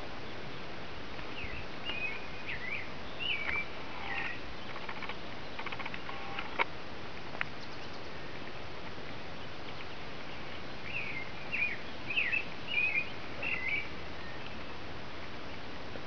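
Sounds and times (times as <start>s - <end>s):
outdoor hiss: 0.0s - 16.0s
bird chirping: 1.3s - 6.6s, 7.4s - 8.4s, 9.2s - 14.8s
faint clicks: 3.4s - 10.0s.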